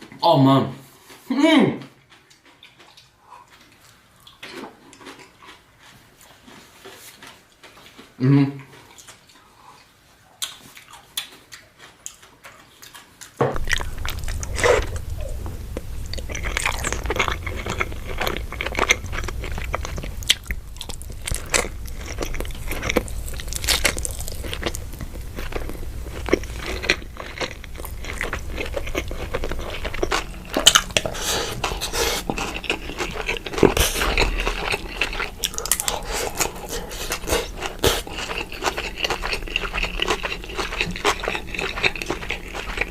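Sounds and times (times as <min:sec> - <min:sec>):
biting crunching and chewing: 0:10.4 - 0:42.9
low hum: 0:13.6 - 0:42.9.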